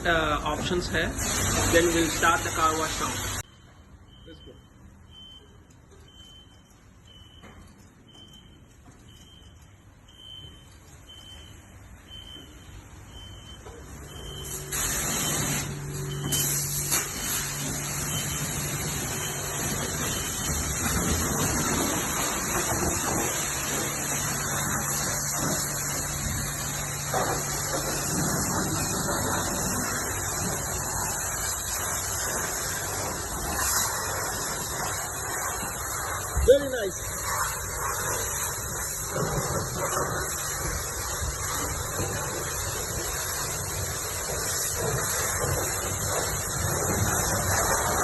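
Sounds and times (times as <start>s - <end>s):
pressure washer spraying hiss: 0.0s - 3.4s, 13.8s - 48.0s
short electronic beeps: 3.4s - 16.9s, 18.0s - 20.8s.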